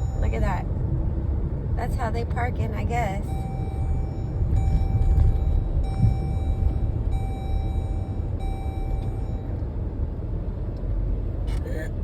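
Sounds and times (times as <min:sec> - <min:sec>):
car driving rumble: 0:00.0 - 0:12.0
electronic beeps: 0:03.3 - 0:09.5.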